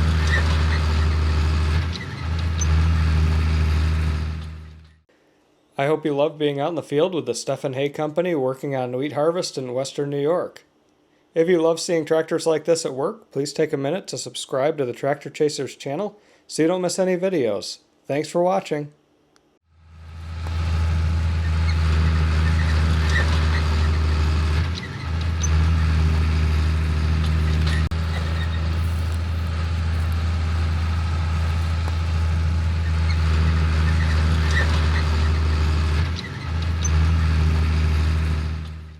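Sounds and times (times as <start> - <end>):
farm machinery engine humming: 0.0 - 5.0, 19.8 - 38.9.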